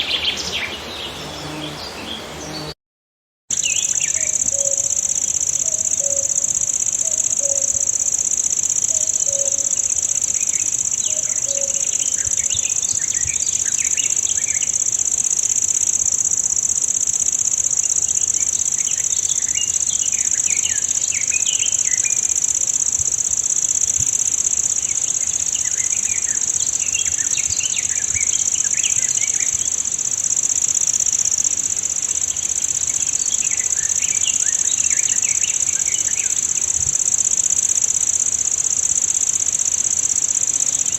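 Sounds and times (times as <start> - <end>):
songbirds chirping: 0.0 - 2.8, 3.5 - 15.9, 24.6 - 30.1, 31.9 - 36.8
high-pitched insect drone: 3.5 - 40.9.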